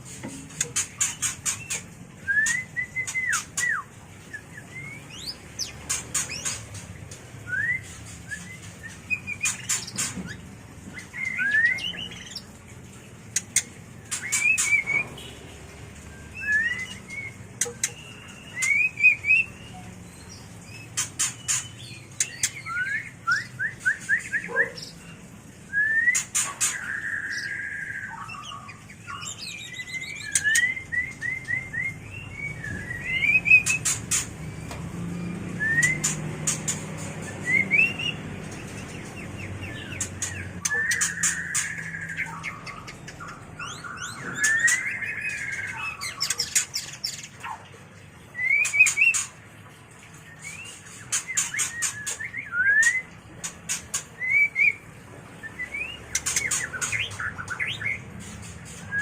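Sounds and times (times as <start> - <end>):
bird singing whistled phrases: 1.7 - 5.4, 7.4 - 9.8, 11.0 - 12.3, 16.1 - 19.9, 21.4 - 24.8, 25.7 - 34.6, 35.2 - 36.2, 37.2 - 38.2, 39.6 - 46.7, 48.3 - 49.2, 50.3 - 53.2, 54.2 - 54.8, 55.4 - 58.0.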